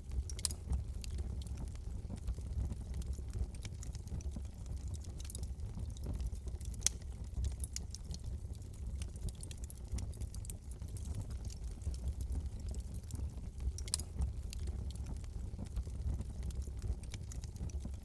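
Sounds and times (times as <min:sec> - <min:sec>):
low fire rumble: 0:00.0 - 0:18.0
wood fire crackling: 0:00.0 - 0:18.0.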